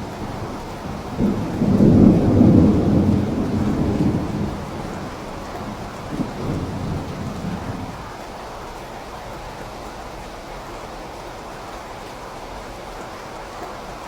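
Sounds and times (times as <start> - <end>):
low rumble of thunder: 0.0 - 8.2
steady rain: 0.0 - 14.0.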